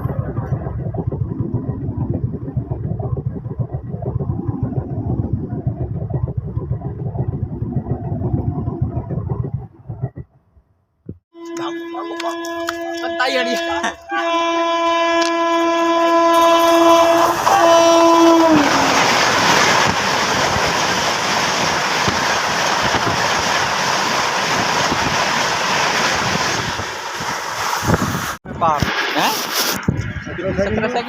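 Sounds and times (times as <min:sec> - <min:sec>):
train rushing: 0:00.0 - 0:09.5, 0:11.4 - 0:31.0
train horn blast: 0:11.4 - 0:19.2
wheels clattering over rail joints: 0:15.2 - 0:28.1.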